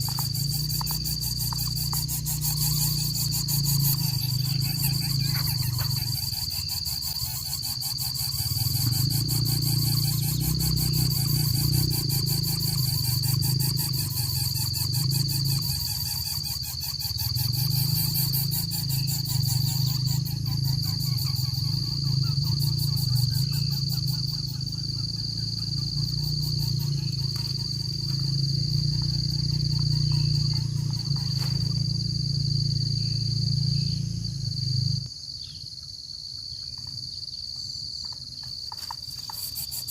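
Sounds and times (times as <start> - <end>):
insects chirring: 0.0 - 39.9
loud low rumble: 24.6 - 35.0.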